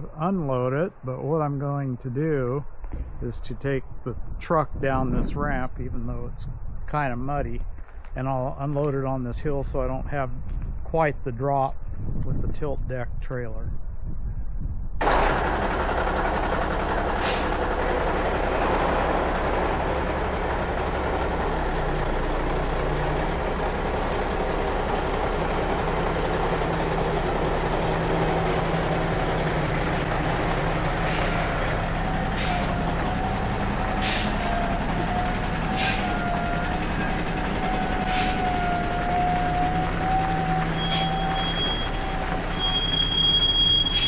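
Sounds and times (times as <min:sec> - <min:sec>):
truck engine running: 0:15.0 - 0:44.0.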